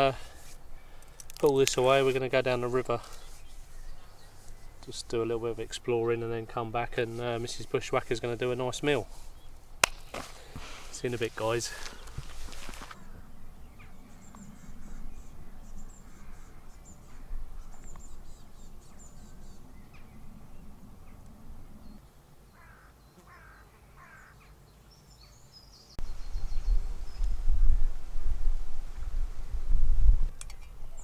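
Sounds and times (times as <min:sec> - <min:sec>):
birds chirping: 0:00.0 - 0:27.9
crow-like caws: 0:22.5 - 0:24.5.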